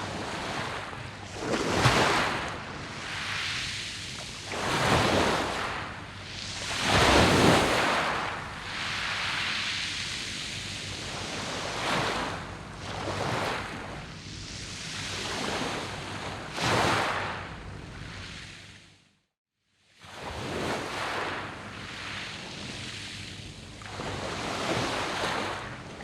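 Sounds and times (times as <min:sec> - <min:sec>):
waves washing over pebbles: 0:00.0 - 0:13.9.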